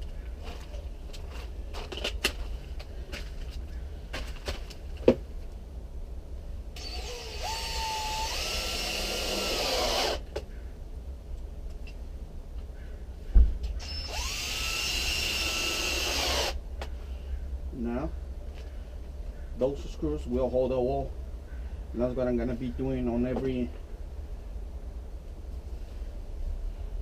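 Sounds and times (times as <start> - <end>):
power drill driving screws: 6.8 - 10.2, 13.8 - 16.6.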